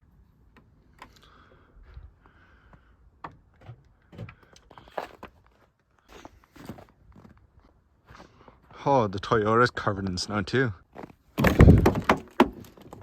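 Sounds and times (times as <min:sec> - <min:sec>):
soft crunches and knocks: 0:03.6 - 0:08.3.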